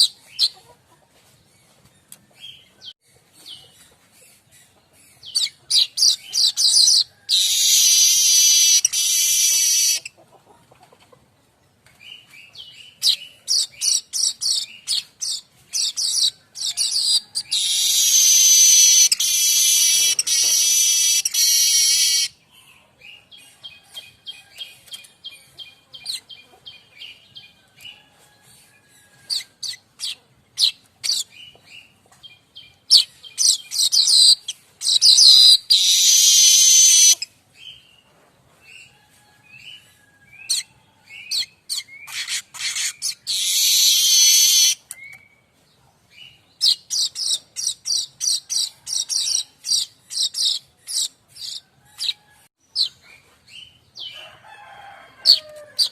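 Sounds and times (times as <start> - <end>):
bird chattering high notes: 17.6 - 22.3.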